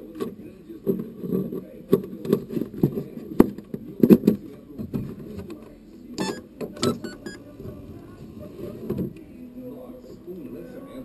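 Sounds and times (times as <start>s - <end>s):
knocking and rattling of toy truck: 0.0s - 5.7s.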